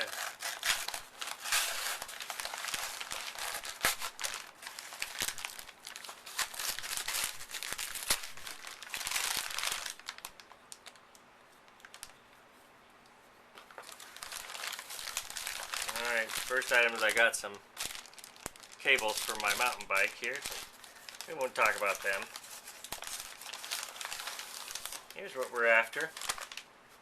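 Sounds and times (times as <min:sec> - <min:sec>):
knife slitting envelope: 0:00.0 - 0:05.3
envelope crinkling and crackling: 0:00.0 - 0:12.2, 0:13.6 - 0:27.0.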